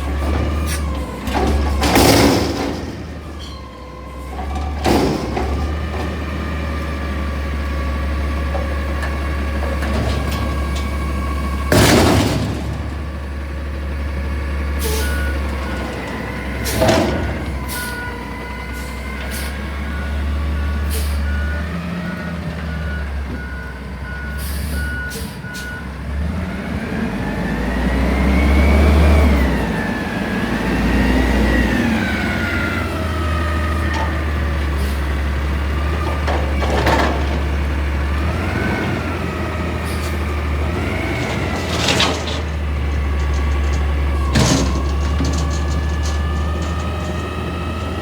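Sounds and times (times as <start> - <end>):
truck reversing alarm beeps: 13.4 - 48.0
truck engine revving: 26.0 - 48.0.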